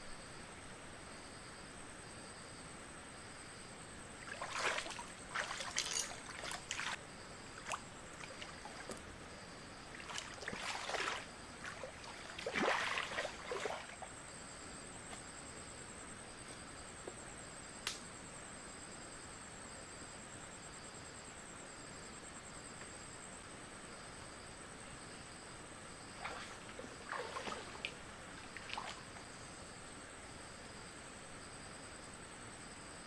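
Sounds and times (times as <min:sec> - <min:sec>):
pulsing insect chirp: 0:03.2 - 0:20.0, 0:25.1 - 0:30.8
noisy splashing: 0:04.2 - 0:07.0, 0:09.9 - 0:14.0, 0:26.2 - 0:29.1
insects trilling: 0:04.2 - 0:16.1, 0:25.0 - 0:29.8
sharp click: 0:17.8 - 0:18.0.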